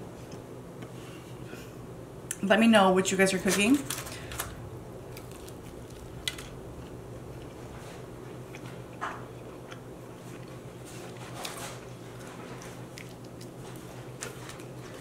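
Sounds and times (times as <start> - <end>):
crisp food crackling: 3.5 - 7.7
soft chewing and mouth sounds: 5.1 - 15.0.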